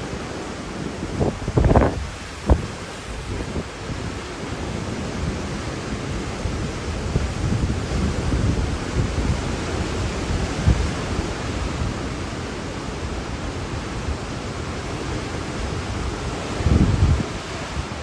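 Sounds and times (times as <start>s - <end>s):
strong wind rushing: 0.0s - 18.0s
wind buffeting microphone: 0.9s - 18.0s.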